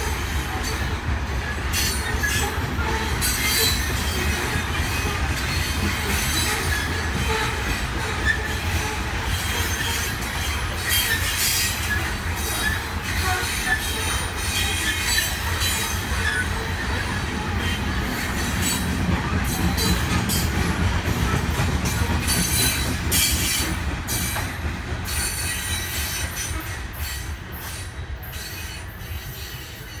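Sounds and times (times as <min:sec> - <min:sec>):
freight train rumbling past: 0:00.0 - 0:30.0
high wheel squeal: 0:00.6 - 0:18.9.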